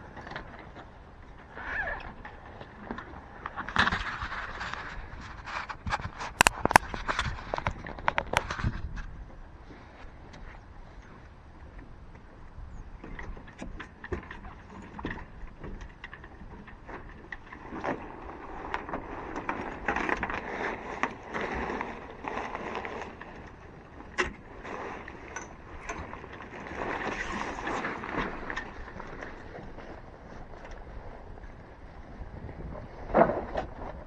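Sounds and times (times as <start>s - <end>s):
sailcloth rustling and crumpling: 16.8s - 34.0s.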